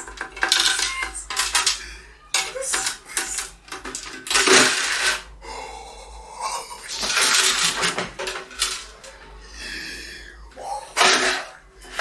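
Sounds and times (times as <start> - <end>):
tool clanking and scraping metal: 0.0 - 1.8, 2.4 - 5.3, 6.9 - 9.2, 11.0 - 12.0.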